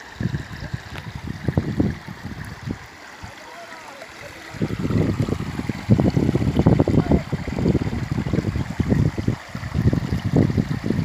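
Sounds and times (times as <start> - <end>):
wind buffeting microphone: 0.0 - 3.3, 4.4 - 11.0
river water rushing: 0.0 - 11.0.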